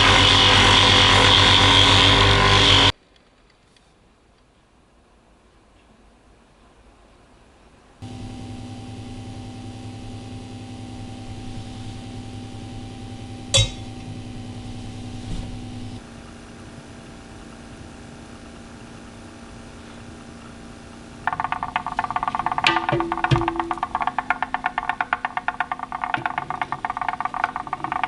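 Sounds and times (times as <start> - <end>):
electric machine hum: 0.0 - 3.0, 8.0 - 28.0
sharp clink: 13.5 - 14.1
rhythmic percussive music: 21.3 - 28.0.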